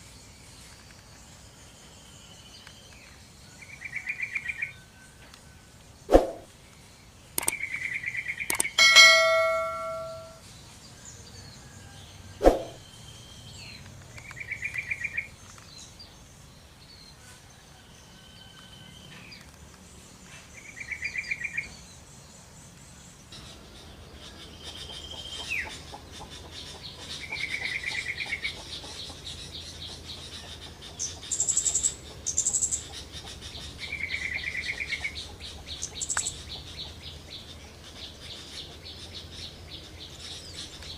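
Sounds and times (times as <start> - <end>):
sharp clicks: 7.4 - 7.8, 8.4 - 8.8
bell-like ding: 8.8 - 10.4
thin high notes: 8.8 - 10.4.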